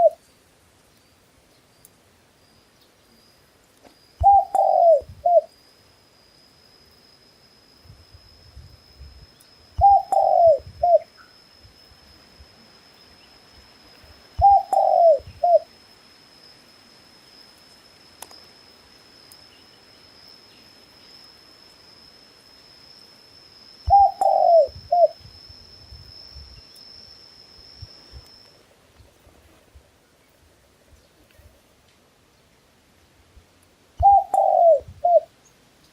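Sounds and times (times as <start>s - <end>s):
dove cooing: 0.0s - 0.2s, 4.2s - 5.5s, 9.8s - 11.1s, 14.4s - 15.7s, 23.9s - 25.2s, 34.0s - 35.3s.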